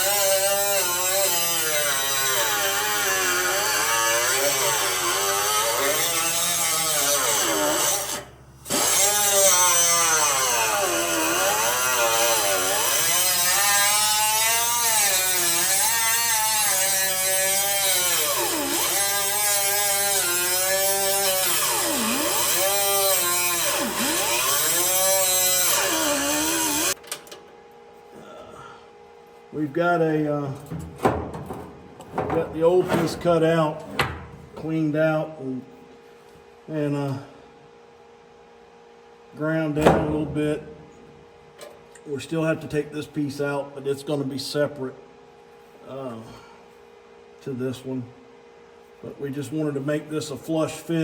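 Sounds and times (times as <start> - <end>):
power tool cutting sheet metal: 0.0 - 27.0.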